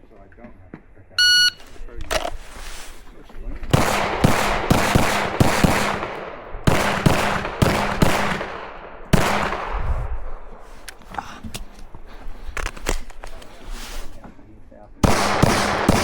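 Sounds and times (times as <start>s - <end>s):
pistol shots echoing: 3.7s - 9.8s, 15.0s - 16.0s.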